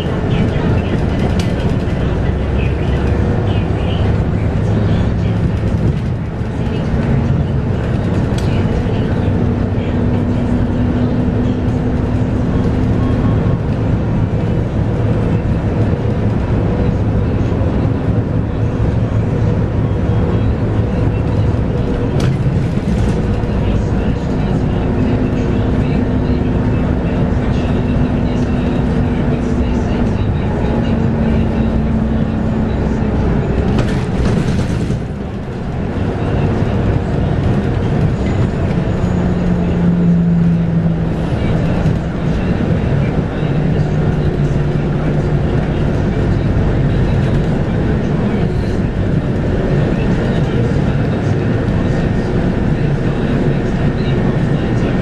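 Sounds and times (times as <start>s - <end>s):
clatter: 0.0s - 10.4s, 20.4s - 40.6s
diesel bus engine rumbling: 0.0s - 55.0s.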